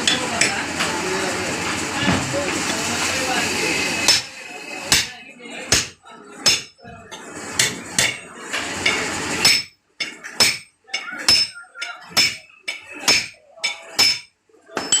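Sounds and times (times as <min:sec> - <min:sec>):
hammer striking metal: 0:04.0 - 0:04.3, 0:05.7 - 0:06.8, 0:07.6 - 0:15.0.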